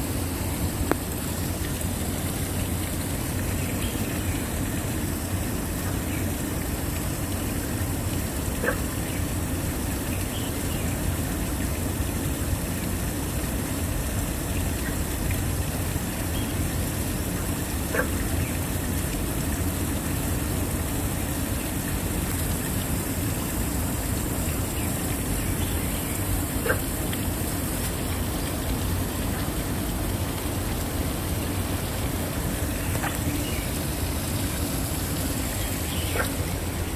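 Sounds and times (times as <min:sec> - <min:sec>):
waterfall rushing: 0:22.0 - 0:36.9.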